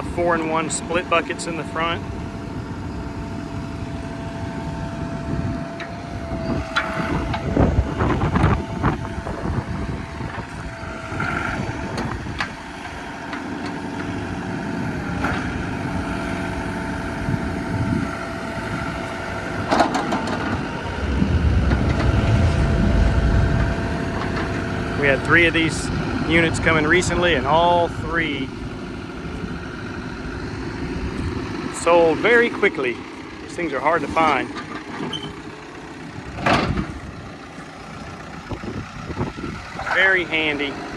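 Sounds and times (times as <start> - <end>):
diesel engine running: 0.0 - 40.9
steady high whine: 17.6 - 34.4.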